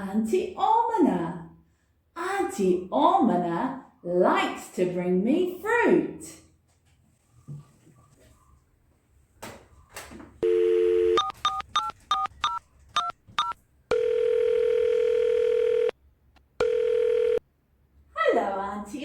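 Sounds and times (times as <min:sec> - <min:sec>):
dial tone: 0:10.4 - 0:12.5, 0:13.9 - 0:16.0, 0:16.6 - 0:17.4
keypad tones: 0:10.4 - 0:13.6
telephone ringing tone: 0:10.4 - 0:16.0, 0:16.6 - 0:17.4.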